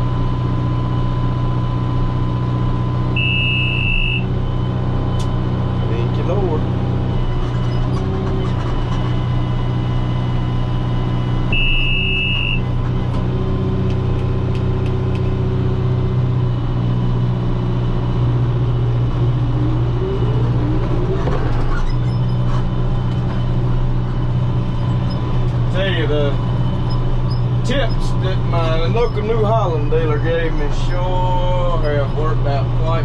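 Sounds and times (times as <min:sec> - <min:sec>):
tractor engine under load: 0:02.4 - 0:33.0
high-pitched electronic beep: 0:03.2 - 0:04.3, 0:11.5 - 0:12.7
faint rising whine: 0:17.7 - 0:25.8.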